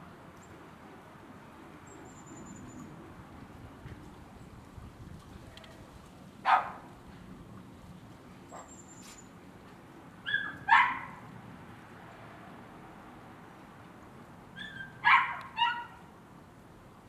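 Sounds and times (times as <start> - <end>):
dog barking: 6.5 - 6.8, 10.3 - 11.2, 14.6 - 16.0
dog yipping: 10.3 - 11.2, 14.6 - 16.0.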